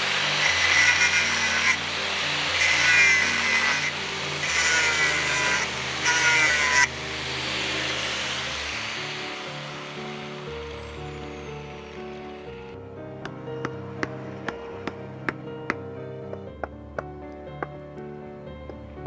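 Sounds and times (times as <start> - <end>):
abrasive tool scraping steel: 0.0 - 15.4
background music: 0.0 - 19.0.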